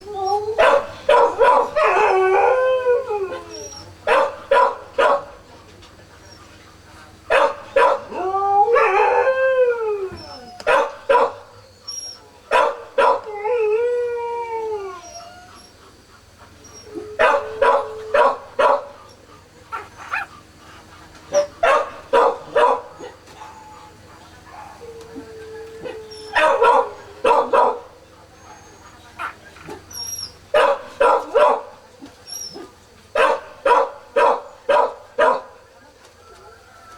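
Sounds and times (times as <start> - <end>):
puppies squealing and wailing: 0.1 - 4.0, 11.5 - 12.4, 13.2 - 18.4, 19.0 - 21.9, 22.6 - 27.4, 28.3 - 30.4, 32.2 - 32.7.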